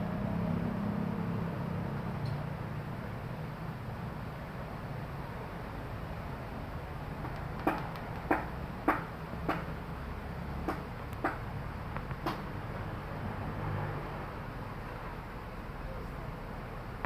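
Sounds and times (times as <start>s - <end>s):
sharp taps: 7.2s - 9.7s, 10.6s - 12.5s.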